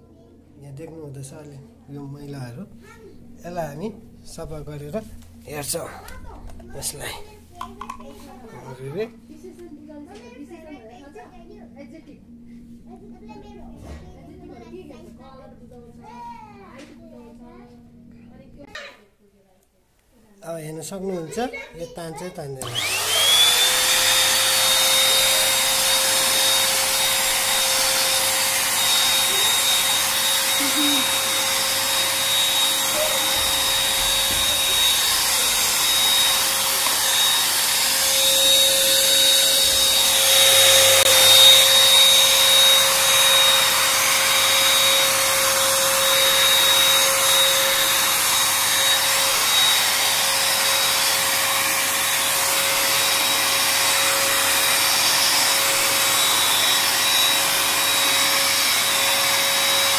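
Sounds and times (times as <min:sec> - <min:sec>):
hand vacuum cleaner whining: 0:22.6 - 0:59.9.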